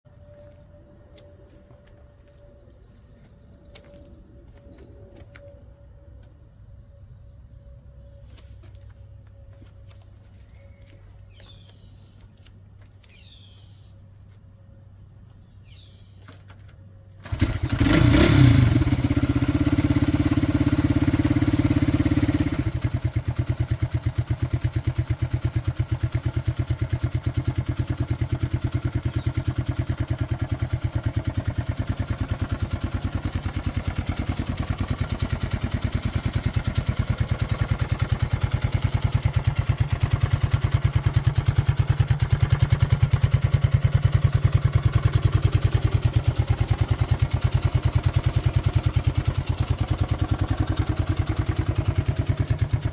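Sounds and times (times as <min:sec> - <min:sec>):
motorcycle engine starting and idling: 0:15.2 - 0:52.9.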